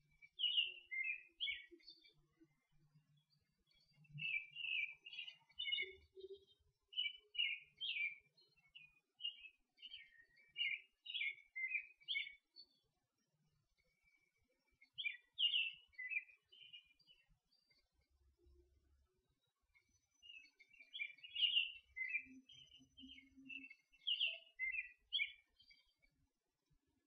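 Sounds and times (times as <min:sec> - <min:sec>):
birds chirping: 0:00.3 - 0:02.1, 0:03.7 - 0:12.8, 0:13.9 - 0:17.8, 0:20.1 - 0:26.0.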